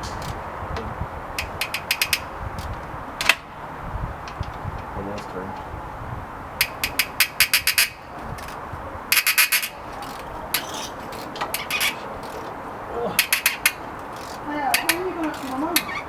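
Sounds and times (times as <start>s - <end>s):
socket ratchet clicking: 1.4s - 3.5s, 6.6s - 12.5s, 13.2s - 16.0s.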